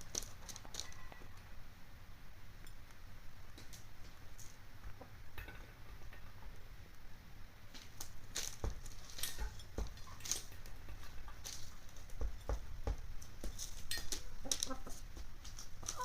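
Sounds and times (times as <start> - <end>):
hens pecking at a dish: 0.0 - 1.6, 7.7 - 16.0.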